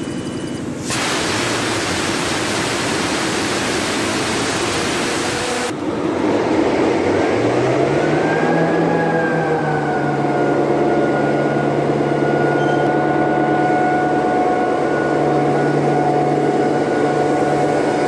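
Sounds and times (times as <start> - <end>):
loud rushing hiss: 0.8 - 5.8
diesel engine starting: 0.9 - 18.0.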